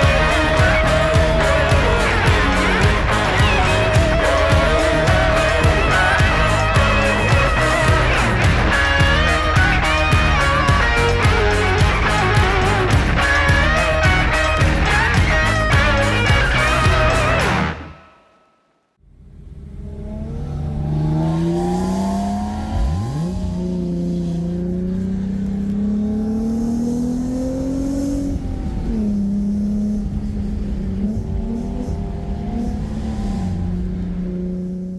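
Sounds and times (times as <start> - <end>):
car engine revving: 0.0 - 18.2, 19.0 - 34.9.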